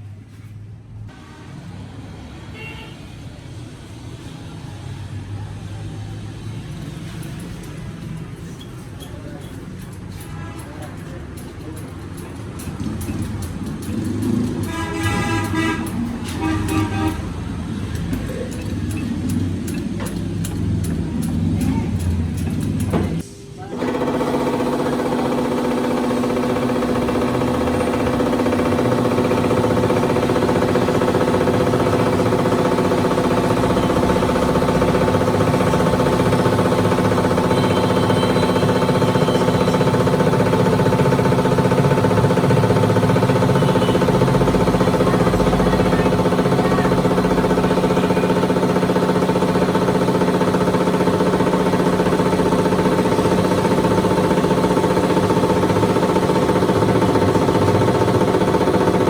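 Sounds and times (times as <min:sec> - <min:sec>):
tractor diesel engine running: 0:23.8 - 0:59.0.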